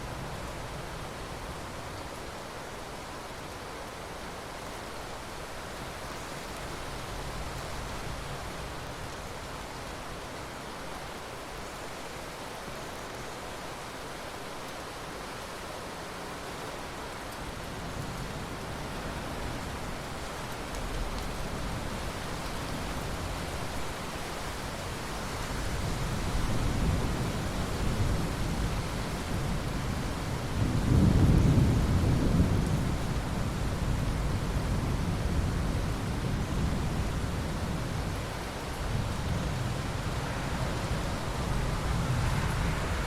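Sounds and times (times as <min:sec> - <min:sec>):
steady rain: 0:00.0 - 0:43.0
rolling thunder: 0:30.5 - 0:38.1.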